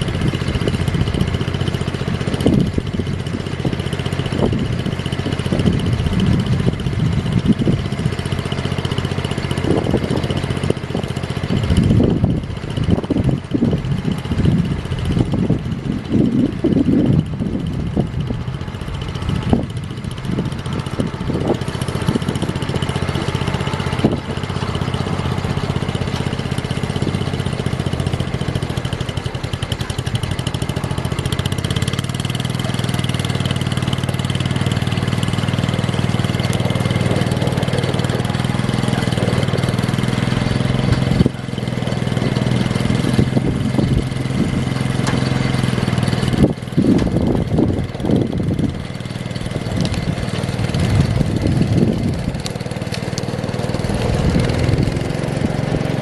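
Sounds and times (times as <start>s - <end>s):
small tractor engine running: 0.0s - 56.0s.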